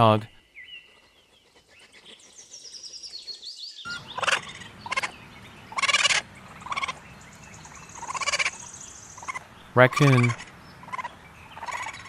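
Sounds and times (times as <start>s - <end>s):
hedgehog rattling calls: 3.9s - 5.1s, 5.7s - 7.0s, 7.6s - 12.0s
hedgehog chirps: 5.7s - 7.0s, 7.6s - 12.0s.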